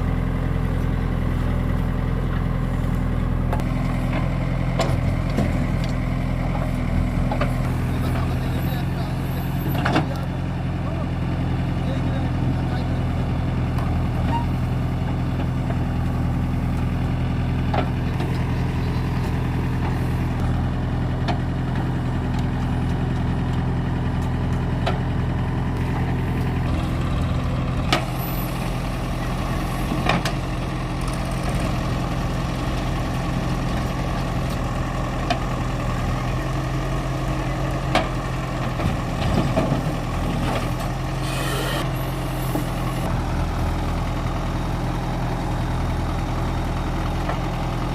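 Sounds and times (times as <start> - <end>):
backhoe diesel engine running: 0.0 - 47.9.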